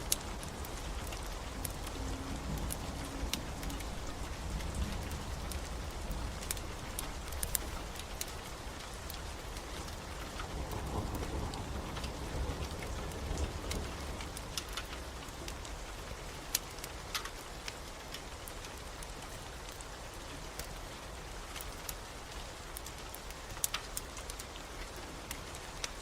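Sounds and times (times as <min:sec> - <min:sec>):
distant thunder rumble: 0:00.0 - 0:16.0
log fire crackling: 0:00.0 - 0:26.0
steady rain: 0:00.0 - 0:26.0.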